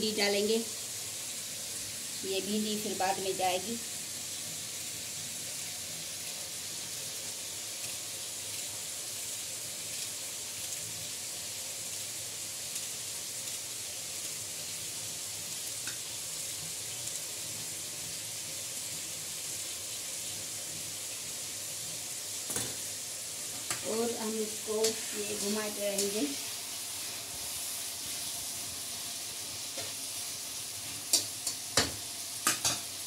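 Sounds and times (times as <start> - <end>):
tomatoes sizzling in oil: 0.0 - 33.0.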